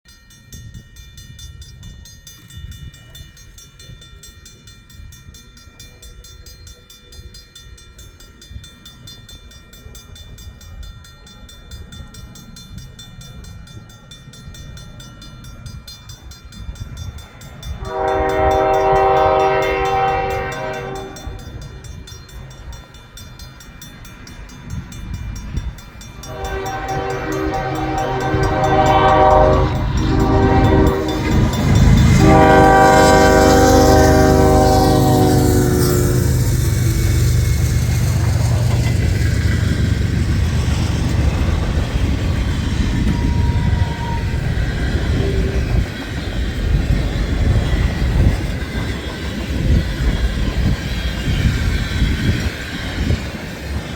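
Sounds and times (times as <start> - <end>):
train rumbling: 8.8 - 53.9
locomotive horn blast: 17.8 - 21.4, 26.3 - 41.2.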